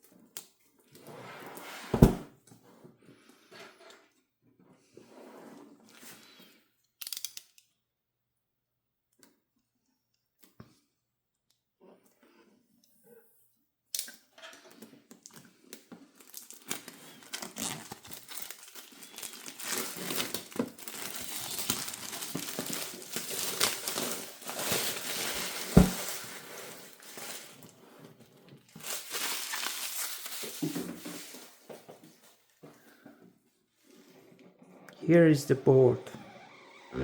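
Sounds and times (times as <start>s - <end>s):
packaging crinkling and tearing: 16.0s - 27.8s, 28.6s - 31.7s.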